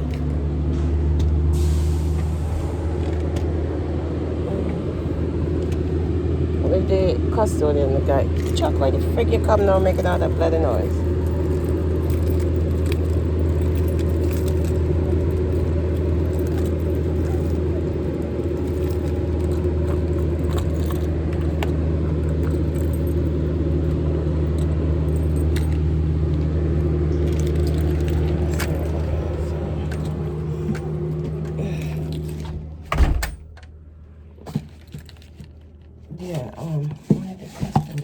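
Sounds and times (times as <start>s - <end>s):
vehicle engine idling: 0.0s - 36.4s
small clicks and jingles: 8.0s - 32.6s.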